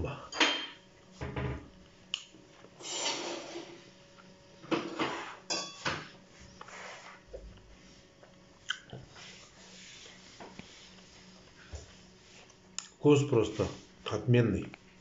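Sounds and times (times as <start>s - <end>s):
man chewing food: 7.3s - 9.2s.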